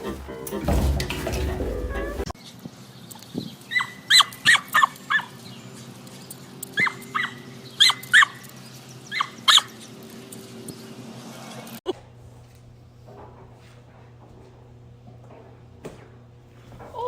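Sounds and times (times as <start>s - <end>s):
dog yipping: 3.7s - 5.3s, 6.8s - 8.4s, 9.1s - 9.8s.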